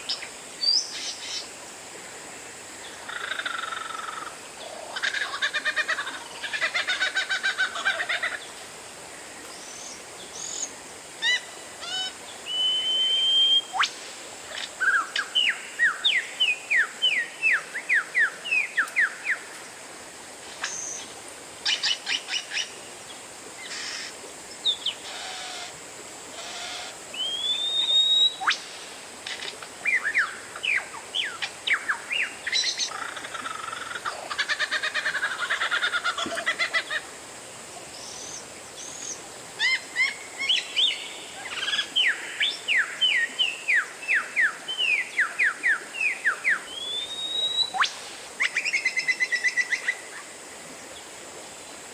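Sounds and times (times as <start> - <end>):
bird song with whistles: 12.5 - 13.9, 27.2 - 28.6, 46.7 - 47.9.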